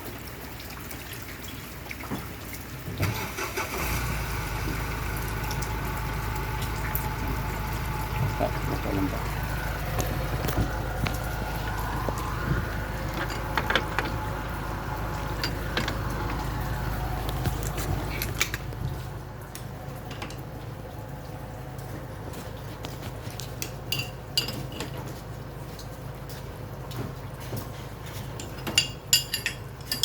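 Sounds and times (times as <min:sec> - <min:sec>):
steady low hum: 0:04.6 - 0:24.4.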